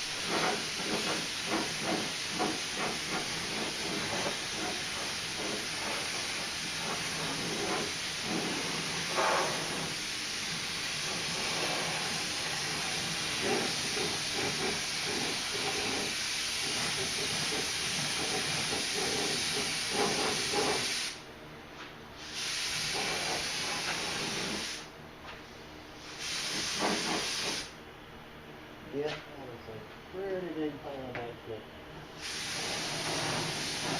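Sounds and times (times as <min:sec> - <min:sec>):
spray gun hissing: 0:00.0 - 0:21.2, 0:22.2 - 0:24.9, 0:26.0 - 0:27.7, 0:32.2 - 0:33.9.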